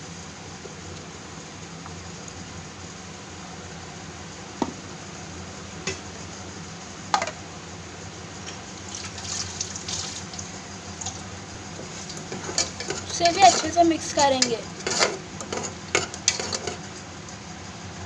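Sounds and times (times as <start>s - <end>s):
paste sizzling in oil: 8.4s - 16.9s.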